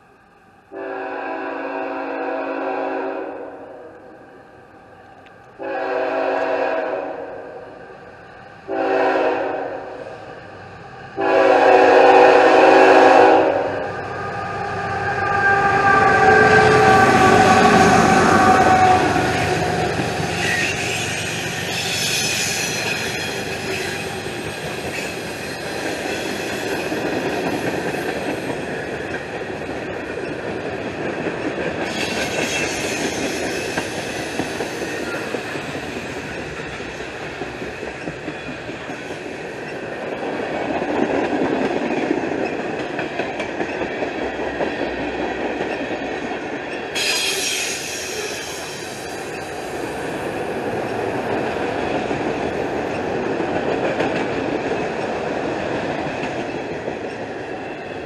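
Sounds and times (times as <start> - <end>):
wheels rolling on rail: 13.2 - 58.0
high-pitched wheel squeal: 47.0 - 49.5.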